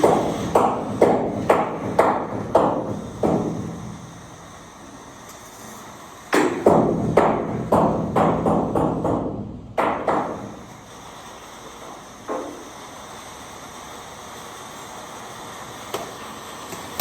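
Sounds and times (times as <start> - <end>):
hammer striking metal: 0.0 - 4.2, 6.4 - 10.7.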